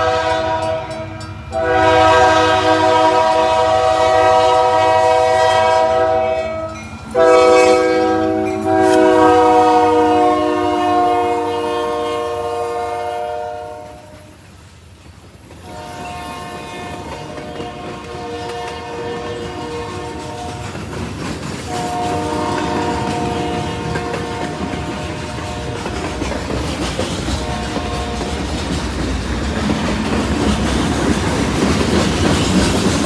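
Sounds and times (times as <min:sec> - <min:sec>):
locomotive air horn blasts: 0:00.0 - 0:14.3, 0:15.6 - 0:20.7, 0:21.7 - 0:26.2, 0:27.4 - 0:28.4
low train rumble: 0:00.0 - 0:33.0.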